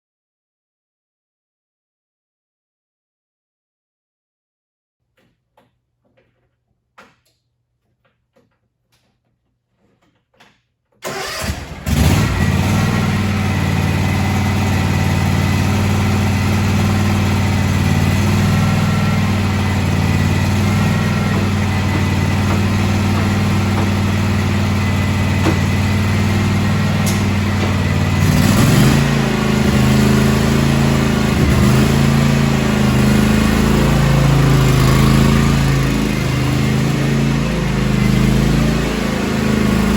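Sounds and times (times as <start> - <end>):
lawn tractor engine cranking and running: 9.0 - 39.9.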